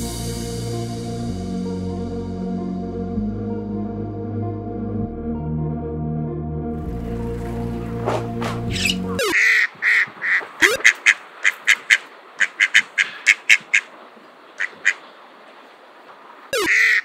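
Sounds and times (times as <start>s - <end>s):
music: 0.0s - 9.2s
duck quacking: 8.0s - 13.9s, 14.6s - 15.0s, 16.6s - 17.0s.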